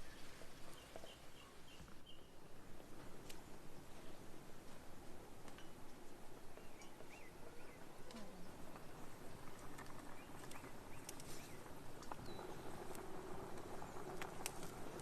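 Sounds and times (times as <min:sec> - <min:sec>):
small birds chirping: 0:00.0 - 0:02.5, 0:06.4 - 0:15.0
steady background hiss: 0:00.0 - 0:15.0.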